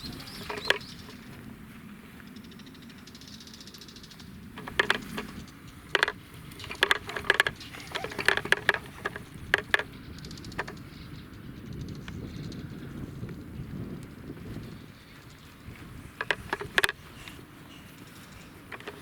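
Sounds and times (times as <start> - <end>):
wooden baby walker clacking: 0.0 - 1.4, 4.6 - 10.9, 15.2 - 19.0.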